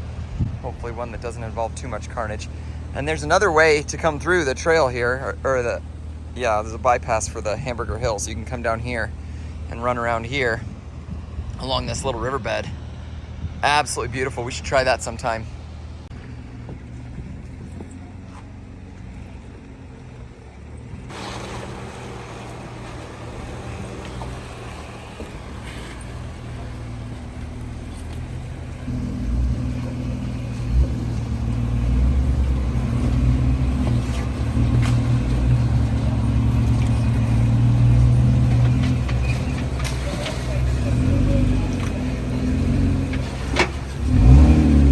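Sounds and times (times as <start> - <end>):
car engine running: 15.7 - 44.9.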